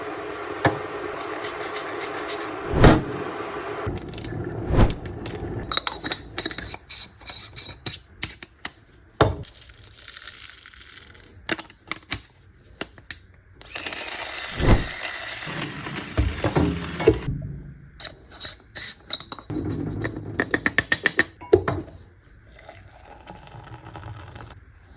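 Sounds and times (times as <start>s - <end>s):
heavy thumps: 2.7s - 3.2s.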